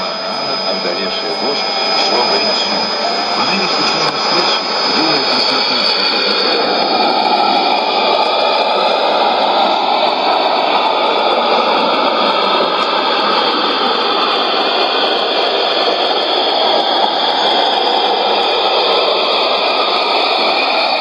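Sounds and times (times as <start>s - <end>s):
radio receiver hiss: 0.1s - 9.3s.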